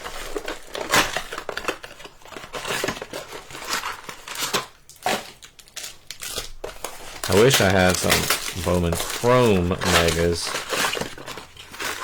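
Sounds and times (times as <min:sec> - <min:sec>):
plastic wrappers crinkling: 0:00.0 - 0:12.0
cardboard cards tapping and sliding: 0:06.6 - 0:12.0.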